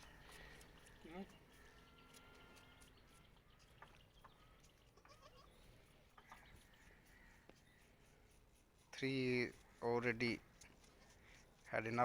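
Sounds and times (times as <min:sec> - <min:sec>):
young goats bleating: 0:04.9 - 0:05.7.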